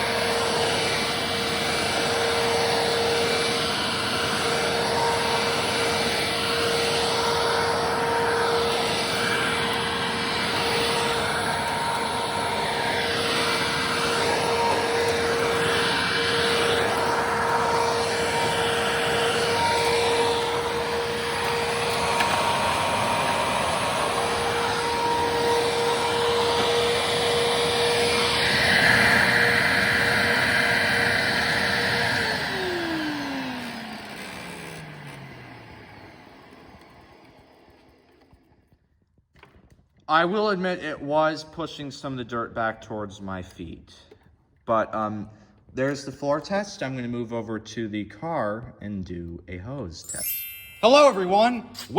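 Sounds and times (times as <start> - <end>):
vacuum cleaner motor whine: 0.0 - 38.8
higher-pitched whine: 50.0 - 51.9.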